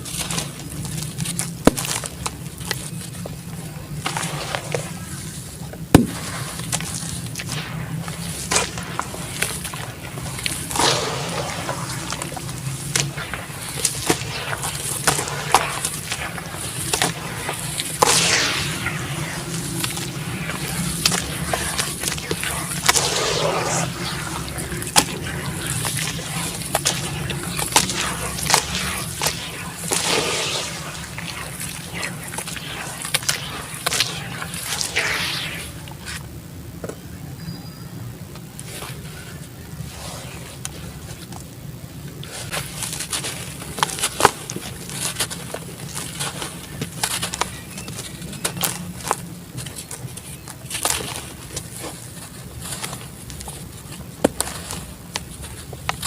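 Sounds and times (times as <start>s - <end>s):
wet gritty hiss of crumbling: 0.0s - 36.2s.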